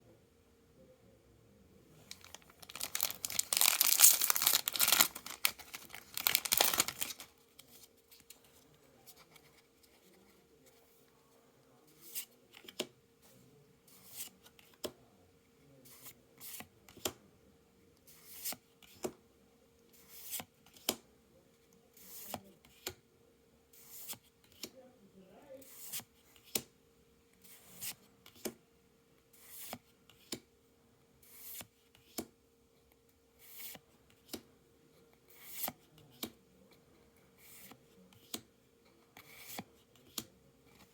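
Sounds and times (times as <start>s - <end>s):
foil wrapper tearing and crinkling: 2.1s - 7.3s.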